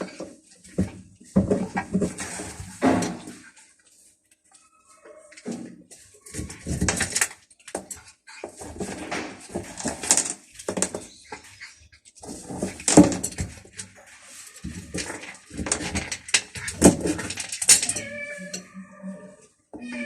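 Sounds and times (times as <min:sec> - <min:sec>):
cats vocalizing: 0:14.0 - 0:20.0.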